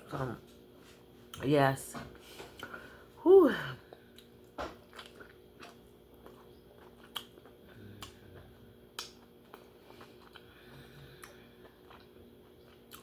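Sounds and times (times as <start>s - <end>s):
close-up chewing: 3.9s - 13.0s.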